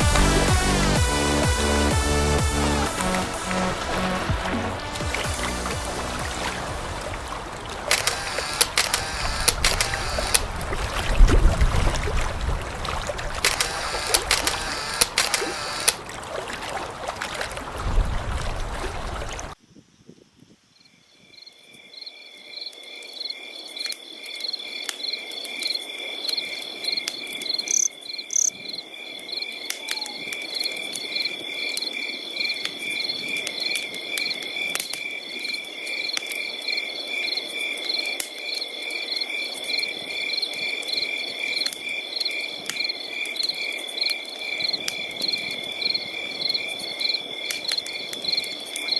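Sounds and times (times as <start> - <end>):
crickets chirping: 19.6 - 29.7.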